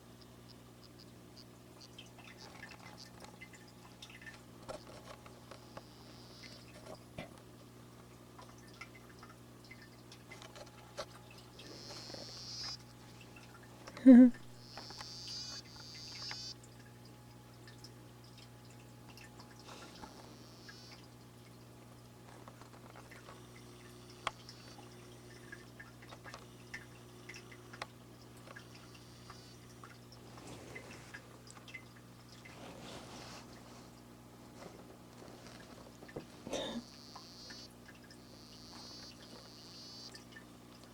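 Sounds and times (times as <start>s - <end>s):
faint low hum: 0.0s - 40.9s
watery drips: 0.1s - 40.9s
frog buzzing trill: 5.6s - 6.8s, 11.6s - 12.8s, 14.5s - 16.6s, 19.9s - 21.2s, 28.7s - 29.7s, 36.5s - 40.3s
small clicks: 13.9s - 16.6s.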